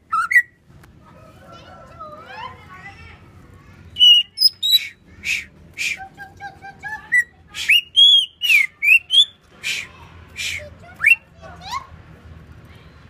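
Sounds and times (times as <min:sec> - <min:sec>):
bird singing whistled notes: 0:04.0 - 0:05.5, 0:07.2 - 0:09.4
harsh rasping bird notes: 0:04.0 - 0:06.1, 0:07.1 - 0:11.2.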